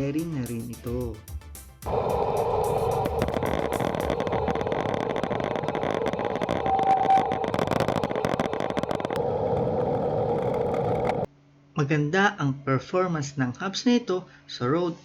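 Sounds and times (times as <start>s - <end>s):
bicycle tyres rolling: 1.9s - 11.3s.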